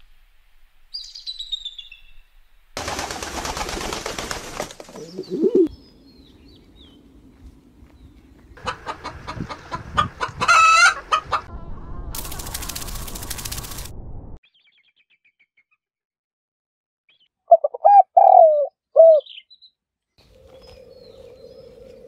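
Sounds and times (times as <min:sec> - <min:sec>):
chicken squawk: 0:08.6 - 0:11.5
chickens clucking: 0:08.6 - 0:11.5.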